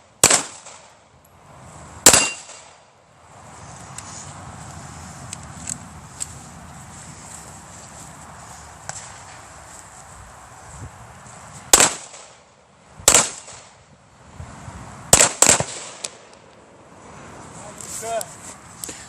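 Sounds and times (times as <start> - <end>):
gunshots: 0.2 - 1.0, 2.0 - 2.8, 11.7 - 12.4, 13.0 - 13.7, 15.1 - 16.2.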